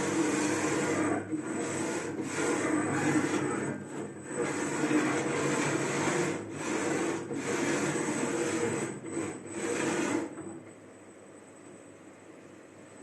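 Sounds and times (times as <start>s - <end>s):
cnc router cutting: 0.0s - 10.3s
thin high whine: 2.4s - 5.2s.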